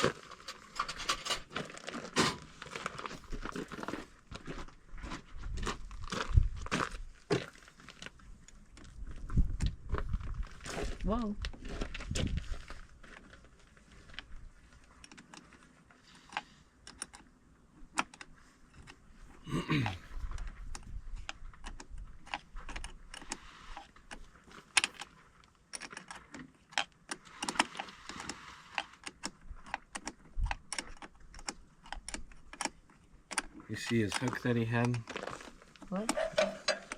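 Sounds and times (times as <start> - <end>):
hand tools clicking and clinking: 36.0 - 36.9.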